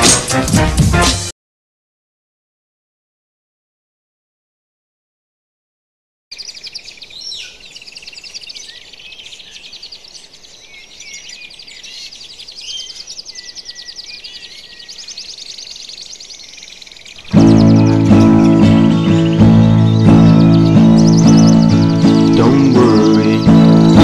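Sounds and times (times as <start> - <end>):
songbirds chirping and trilling: 6.3 - 24.0.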